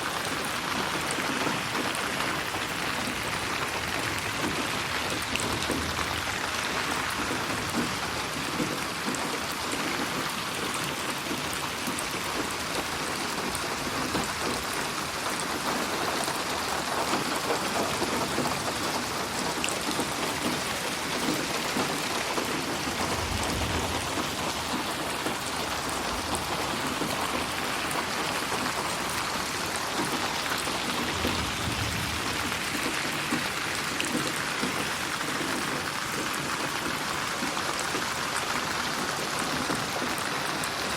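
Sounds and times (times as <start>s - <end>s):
rain pattering on a surface: 0.0s - 40.9s
low rumble: 23.0s - 24.4s, 31.1s - 32.8s.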